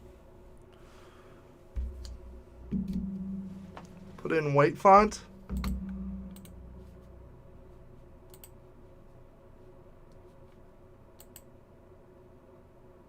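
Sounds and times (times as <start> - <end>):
low steady hum: 0.0 - 13.0
faint sharp computer clicks: 5.5 - 7.0, 8.3 - 8.6, 11.2 - 11.5.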